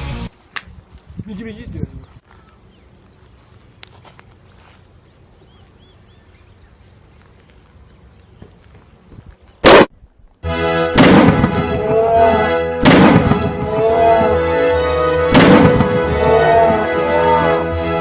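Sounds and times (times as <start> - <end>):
dry ice bomb bang: 11.0 - 11.7, 12.8 - 13.5, 15.3 - 16.0.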